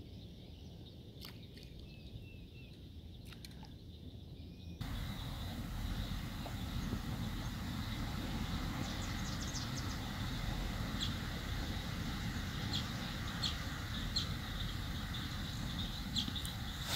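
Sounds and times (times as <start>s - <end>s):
steady low rumble: 4.8s - 16.9s.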